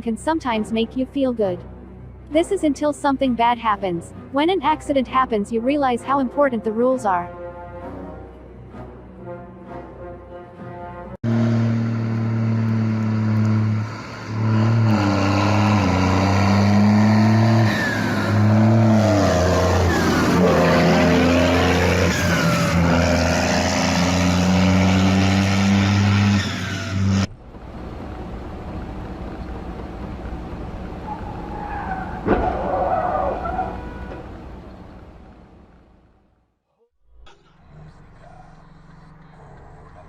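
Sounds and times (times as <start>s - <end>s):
road noise: 10.7s - 36.4s, 37.4s - 40.0s
loud car engine: 11.2s - 36.1s
high squealing glides: 11.3s - 27.3s, 31.0s - 34.3s.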